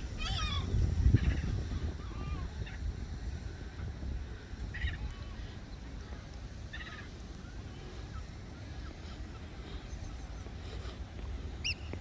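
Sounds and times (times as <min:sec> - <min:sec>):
wind rumbling on microphone: 0:00.0 - 0:12.0
bird call: 0:11.6 - 0:12.0
faint bird chirps: 0:11.6 - 0:12.0.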